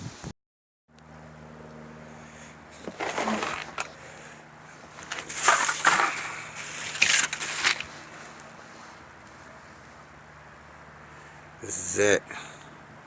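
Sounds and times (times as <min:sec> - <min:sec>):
faint steady hum: 0:00.9 - 0:13.0
rustling and clatter: 0:02.7 - 0:09.5.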